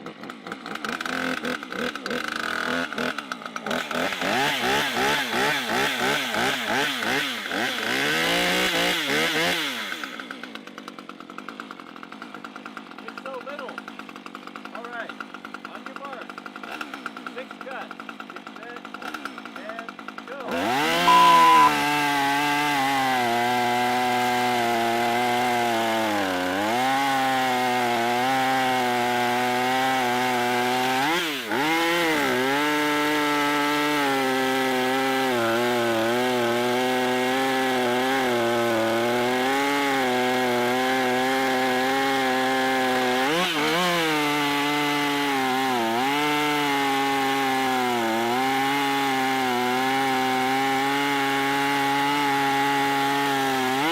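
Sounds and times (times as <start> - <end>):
chainsaw cutting log: 0.0 - 53.9
short high beep: 21.0 - 21.9.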